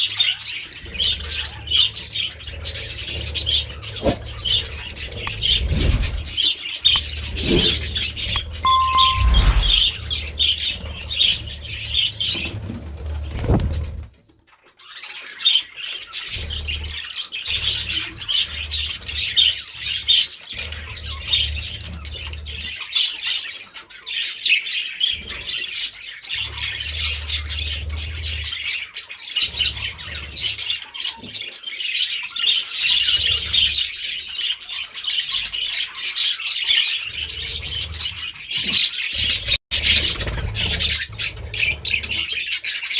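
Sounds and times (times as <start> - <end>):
low rumble: 8.7 - 10.1.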